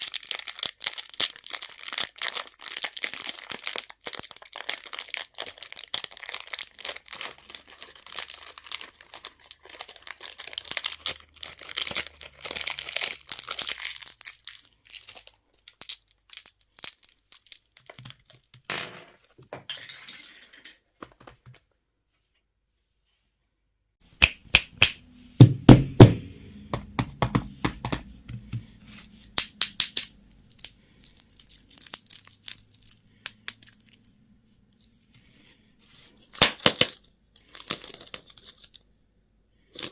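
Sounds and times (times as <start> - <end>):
plastic packaging crinkling: 0.0 - 18.6, 30.4 - 34.1, 36.1 - 38.8.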